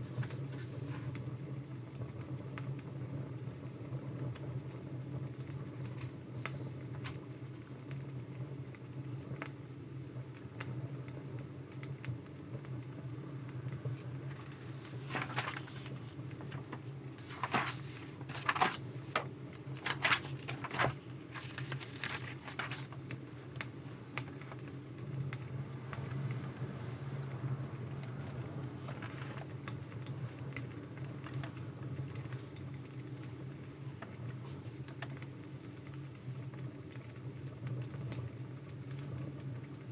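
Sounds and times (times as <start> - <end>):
firewood crackling and popping: 12.9 - 25.5.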